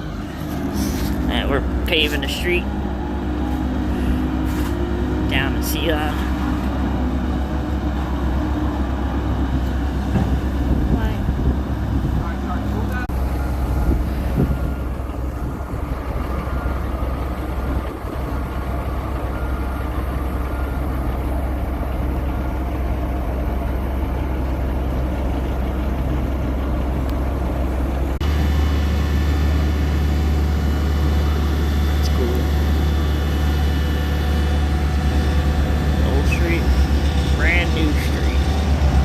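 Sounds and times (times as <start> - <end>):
diesel paving machine engine rumble: 0.0 - 39.0
steady high whine: 27.0 - 39.0.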